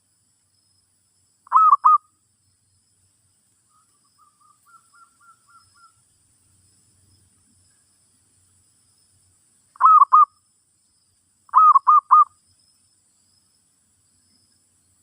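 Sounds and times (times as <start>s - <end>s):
dove cooing: 1.5s - 2.0s, 9.8s - 10.3s, 11.5s - 12.3s.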